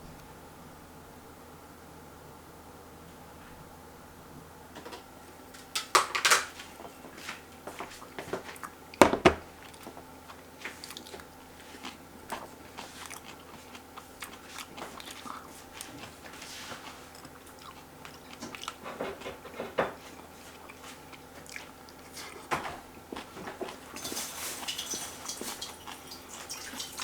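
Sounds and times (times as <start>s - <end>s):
person chewing crunchy food: 6.6s - 27.0s.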